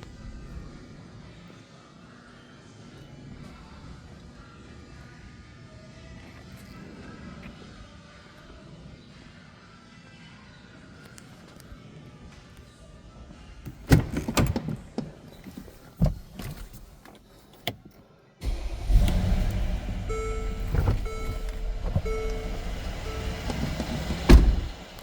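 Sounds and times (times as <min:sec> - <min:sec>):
car door clunks: 0:18.4 - 0:25.0
car engine rumbling: 0:18.4 - 0:25.0
warning chime beeping: 0:18.9 - 0:24.0.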